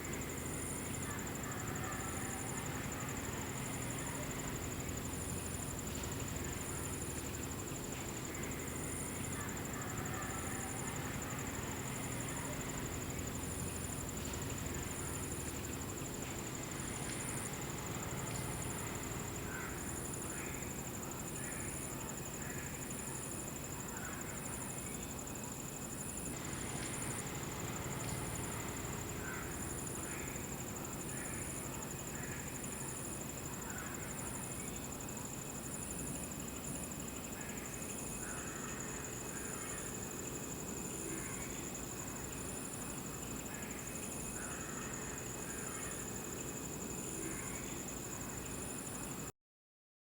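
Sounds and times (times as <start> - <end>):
background hiss: 0.0 - 49.3
insect chirping: 0.0 - 49.3
insect high trill: 26.2 - 49.2.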